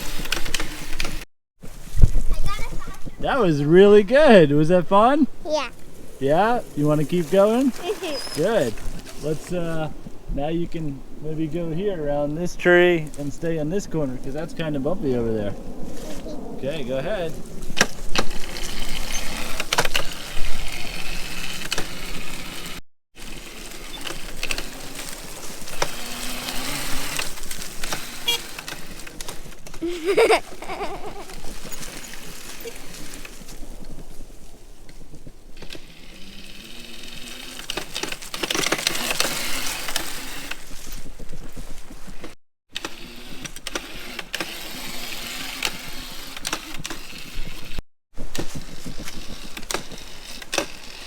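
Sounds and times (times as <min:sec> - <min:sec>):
electric motor whirring: 0:18.2 - 0:29.2
chain and frame rattling: 0:30.1 - 0:33.5.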